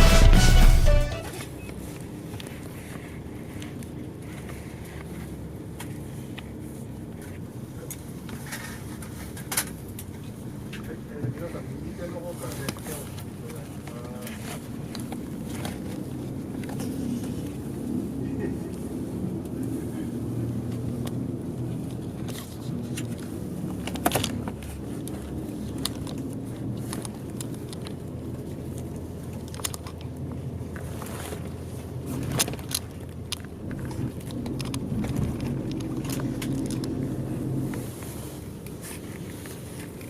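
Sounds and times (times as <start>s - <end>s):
bus diesel engine running: 0.0s - 7.0s, 30.1s - 40.0s.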